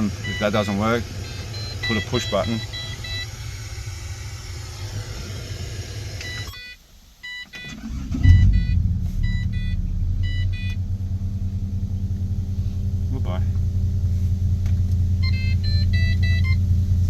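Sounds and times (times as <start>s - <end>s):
dashboard warning chimes: 0.0s - 3.4s, 6.2s - 11.2s, 15.2s - 16.9s
car engine starting and idling: 0.0s - 6.6s, 7.2s - 17.0s
steady low hum: 0.0s - 6.6s, 8.1s - 17.0s.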